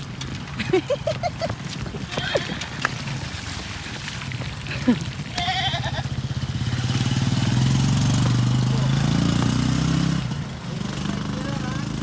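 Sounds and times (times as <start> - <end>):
small motorcycle engine running: 5.6 - 12.0.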